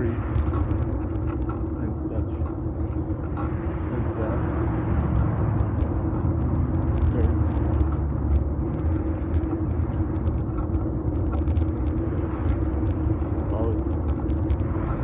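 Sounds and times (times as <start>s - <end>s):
bike tyres and air rumble: 0.0s - 15.0s.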